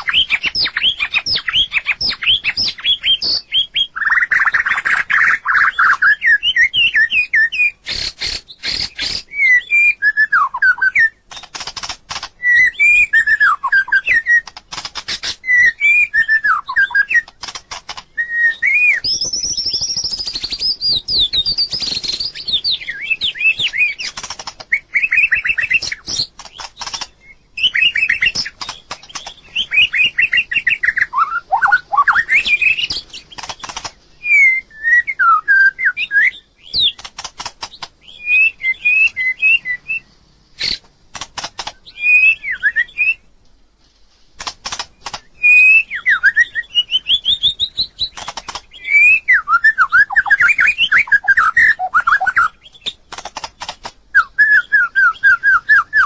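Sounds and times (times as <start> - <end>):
bird singing whistled phrases: 0.0 - 11.5, 12.4 - 14.5, 15.4 - 17.3, 18.2 - 24.1, 24.7 - 28.6, 29.2 - 33.1, 34.2 - 37.0, 38.0 - 40.8, 41.8 - 43.3, 45.4 - 53.0, 54.1 - 56.0
sharp clicks: 11.2 - 12.4, 14.1 - 15.4, 17.1 - 18.2, 23.6 - 24.8, 25.4 - 27.2, 27.8 - 30.5, 32.4 - 34.0, 36.7 - 38.1, 40.6 - 42.0, 44.4 - 45.3, 47.7 - 48.8, 50.0 - 54.0.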